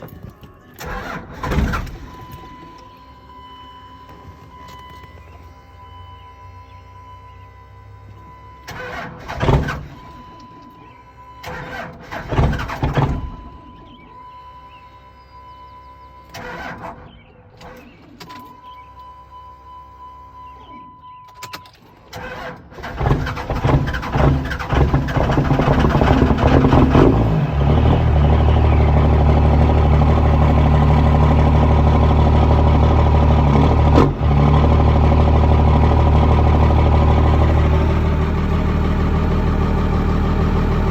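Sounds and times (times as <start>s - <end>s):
diesel engine starting and idling: 0.0s - 40.9s
electronic dash chime: 2.0s - 8.7s, 18.4s - 21.8s.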